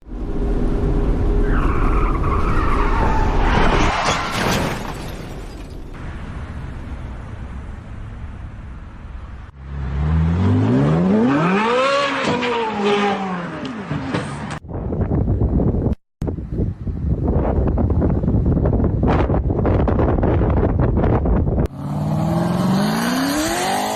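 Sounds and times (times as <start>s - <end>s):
car engine and tyre noise: 0.0s - 23.9s
car engine revving: 21.7s - 23.9s.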